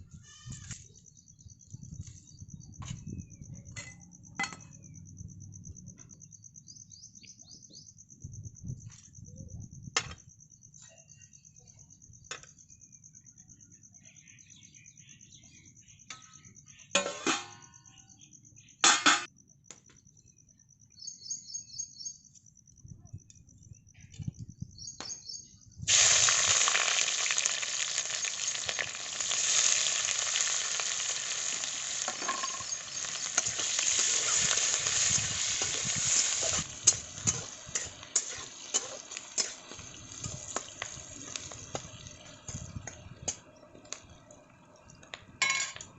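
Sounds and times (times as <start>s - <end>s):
food sizzling in hot oil: 25.9s - 43.4s.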